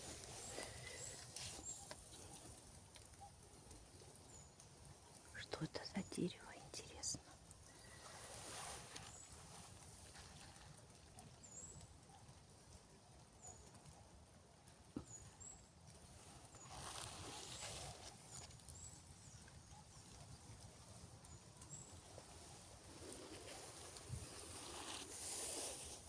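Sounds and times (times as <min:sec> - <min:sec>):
rustling noise: 0:00.0 - 0:02.6, 0:07.9 - 0:10.7, 0:16.1 - 0:19.1, 0:21.9 - 0:26.0.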